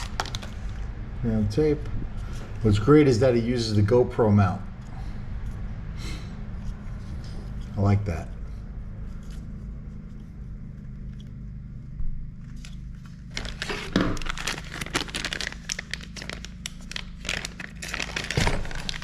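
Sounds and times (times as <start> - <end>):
plastic packaging crinkling: 0.0 - 0.8, 12.6 - 19.0.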